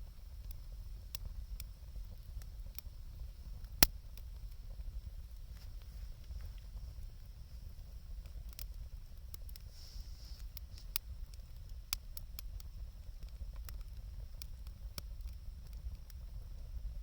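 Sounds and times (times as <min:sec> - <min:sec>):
fire popping: 0:00.0 - 0:17.0
wood fire crackling: 0:00.0 - 0:17.0.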